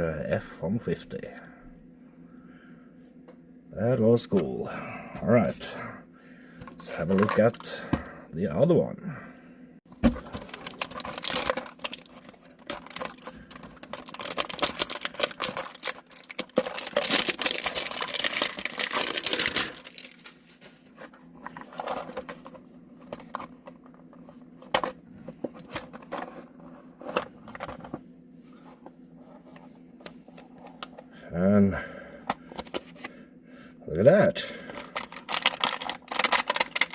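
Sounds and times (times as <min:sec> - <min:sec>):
packaging tearing and crinkling: 0:10.1 - 0:20.8, 0:34.8 - 0:36.9.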